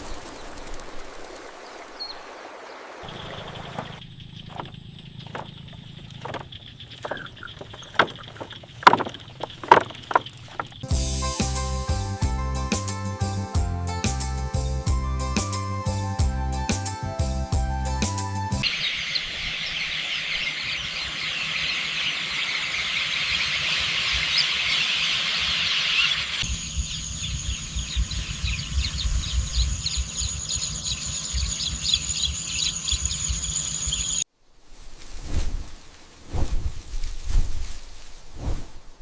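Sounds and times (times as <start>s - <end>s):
insects buzzing: 0.0s - 11.7s, 18.6s - 34.3s
birds chirping: 0.0s - 12.1s, 14.6s - 34.3s
high insect whine: 18.7s - 34.2s
low wind rumble: 26.4s - 39.0s.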